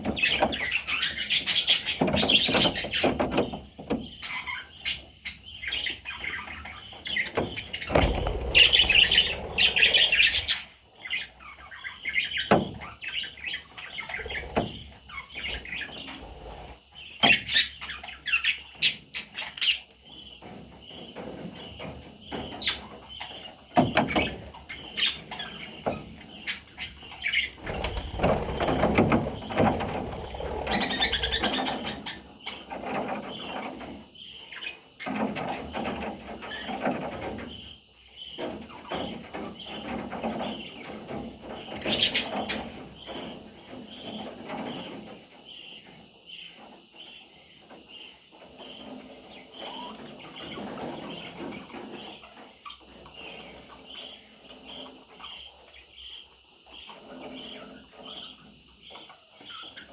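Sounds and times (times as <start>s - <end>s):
budgerigar chicks chirping: 0.0s - 59.9s
rustling and wing flutter: 7.8s - 10.8s, 27.5s - 32.2s.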